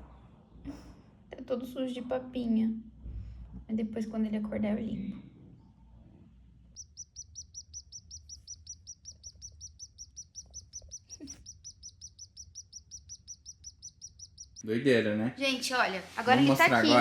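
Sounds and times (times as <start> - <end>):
baby swallow chirping: 6.8 - 14.6.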